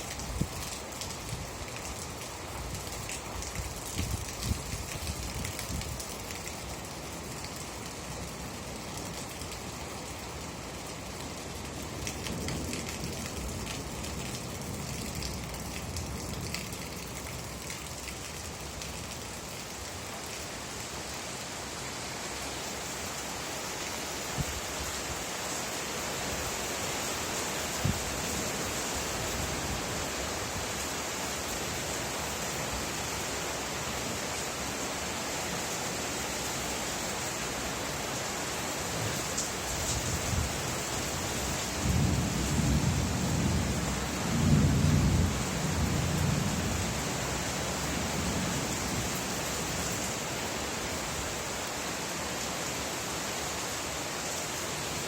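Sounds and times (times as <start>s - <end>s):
steady rain hiss: 0.0s - 55.0s
rain drop ticks: 12.0s - 19.8s
low thunder rumble: 41.8s - 47.1s.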